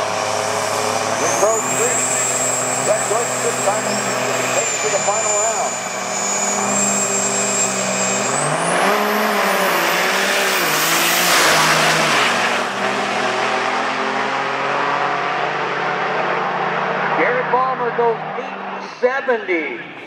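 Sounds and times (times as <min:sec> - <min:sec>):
diesel engines accelerating: 0:00.0 - 0:20.0
turbo whistle: 0:01.2 - 0:09.2.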